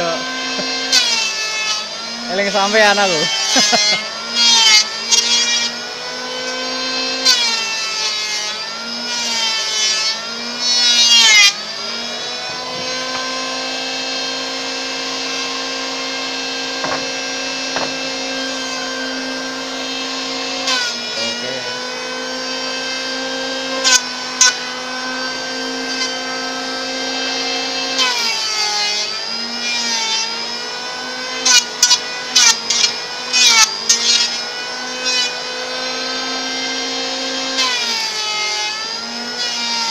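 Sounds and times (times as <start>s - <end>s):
electric wood planer whining: 0.0s - 39.9s
sharp knocks: 16.8s - 18.1s.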